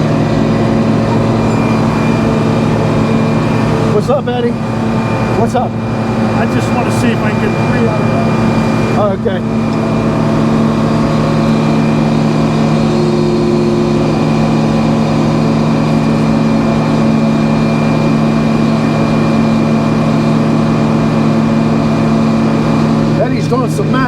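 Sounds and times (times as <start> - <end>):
sawmill engine humming: 0.0 - 24.0.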